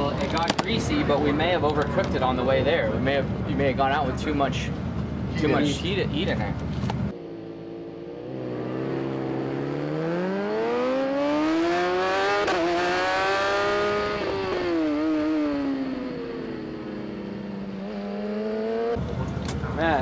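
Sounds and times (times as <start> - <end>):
racing motorcycle engine accelerating: 7.1 - 19.8.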